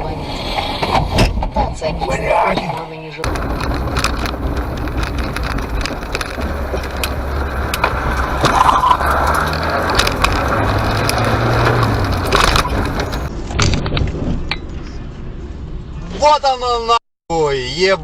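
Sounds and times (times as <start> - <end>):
road noise: 0.0 - 17.0
car engine hum: 3.2 - 13.3
knocks and rattles: 3.2 - 14.4.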